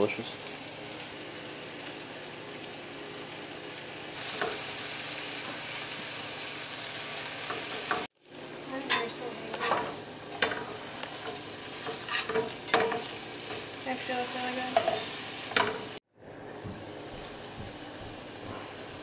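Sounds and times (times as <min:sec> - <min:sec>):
burgers sizzling in a frying pan: 0:00.0 - 0:16.0
utensil scraping and tapping pan: 0:09.6 - 0:13.1.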